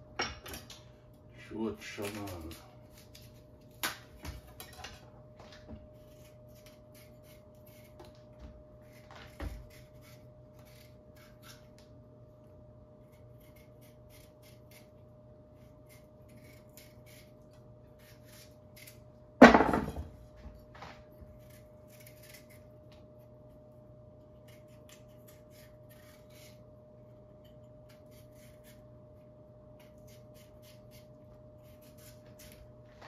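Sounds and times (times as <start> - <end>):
faint steady hum: 0.0 - 33.0
knife scraping through vegetables: 8.8 - 11.8, 20.8 - 22.7
loud knock on counter: 19.4 - 20.1.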